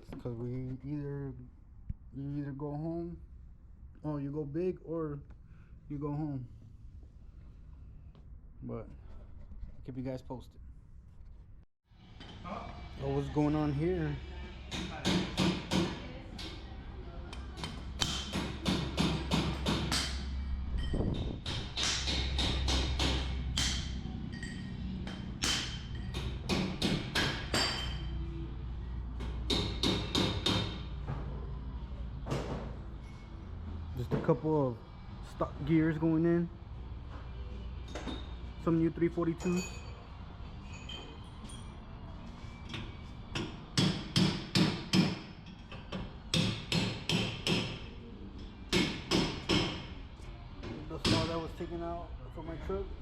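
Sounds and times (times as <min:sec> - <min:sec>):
hammer striking metal: 0:17.6 - 0:28.1, 0:29.4 - 0:30.9, 0:43.4 - 0:47.9, 0:48.7 - 0:49.9.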